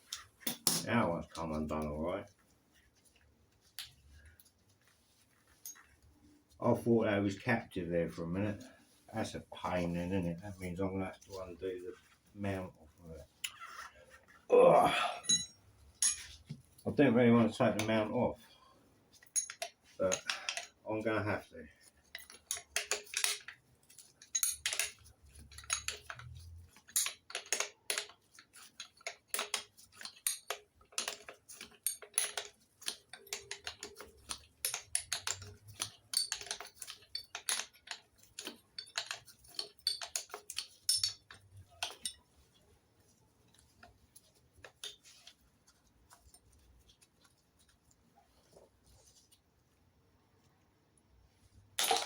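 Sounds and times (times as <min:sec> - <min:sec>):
hand tools clicking on metal: 0:19.3 - 0:20.8, 0:22.1 - 0:42.2.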